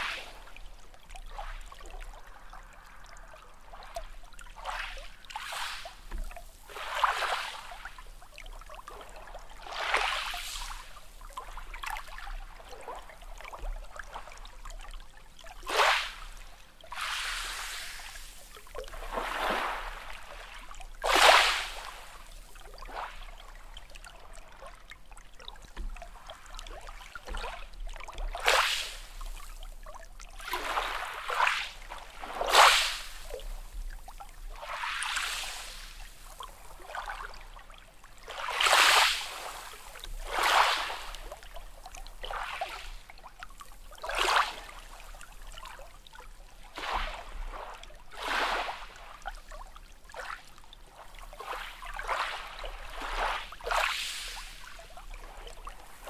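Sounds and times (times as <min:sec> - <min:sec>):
small waves splashing: 0:00.0 - 0:56.0.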